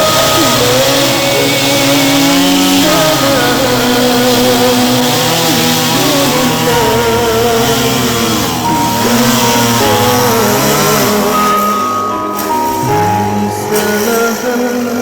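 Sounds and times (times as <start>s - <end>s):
engines running: 0.0s - 15.0s.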